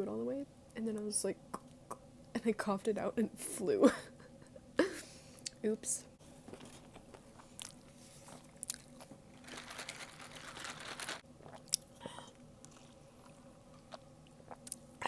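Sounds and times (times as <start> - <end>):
crunching and chewing food: 7.1 - 15.0.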